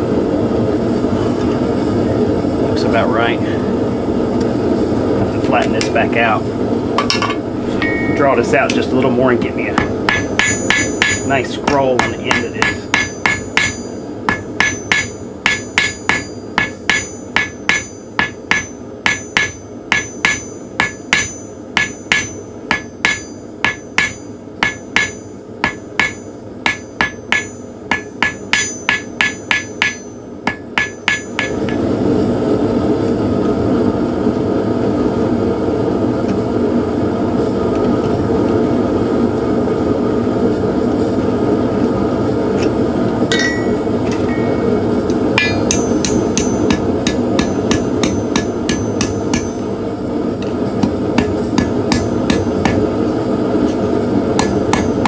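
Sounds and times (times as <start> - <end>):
hammer striking steel on anvil: 7.0 - 31.8, 43.3 - 49.7, 50.8 - 52.9, 54.4 - 55.0.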